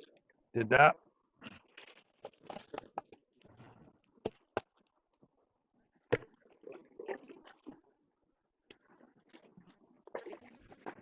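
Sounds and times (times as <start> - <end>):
rocks clicking and knocking: 1.7 - 3.4.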